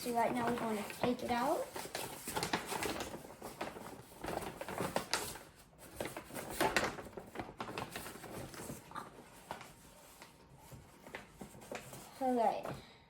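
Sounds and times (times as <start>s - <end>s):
paper bag rustling: 0.0s - 12.5s.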